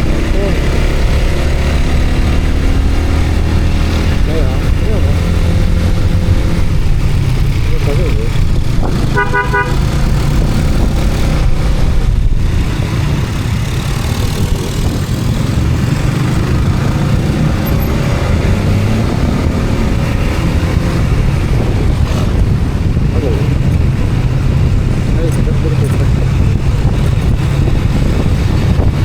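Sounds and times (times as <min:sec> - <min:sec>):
vehicle engine and road noise: 0:00.0 - 0:29.0.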